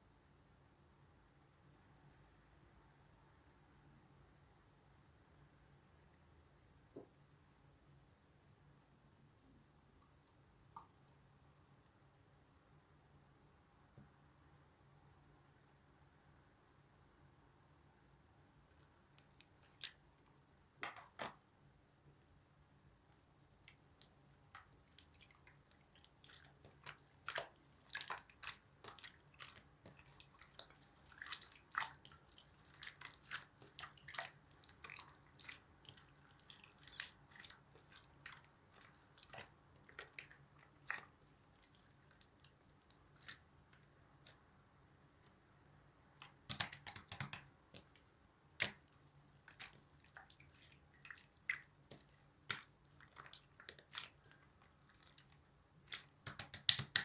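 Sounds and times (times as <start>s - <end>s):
slime squishing: 19.2s - 20.1s, 23.1s - 44.4s, 46.2s - 57.0s
sticky clicks and pops: 46.4s - 47.5s, 56.2s - 57.0s.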